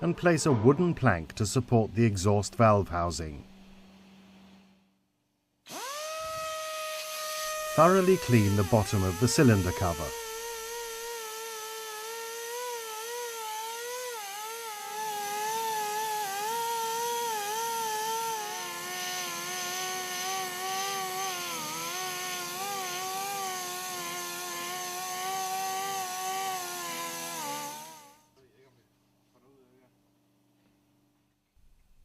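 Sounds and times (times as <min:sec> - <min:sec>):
rotary power tool whining: 0:05.7 - 0:28.3.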